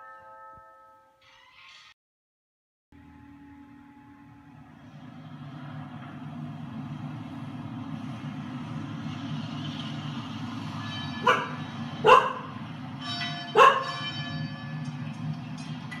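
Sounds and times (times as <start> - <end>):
doorbell chime from tv: 0.0 - 1.1, 13.0 - 15.1
dog barking: 11.2 - 12.6, 13.5 - 14.0.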